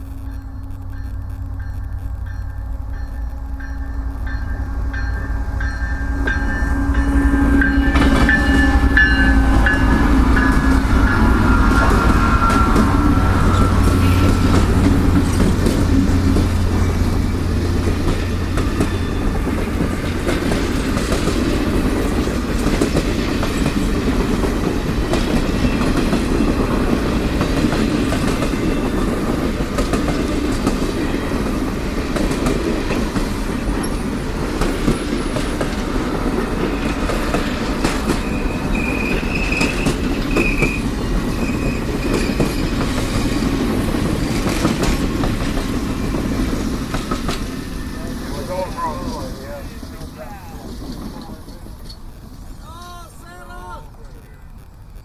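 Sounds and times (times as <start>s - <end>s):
low engine drone: 0.0s - 22.6s
train wheels clattering: 0.0s - 53.2s
wheels squealing: 0.0s - 55.0s.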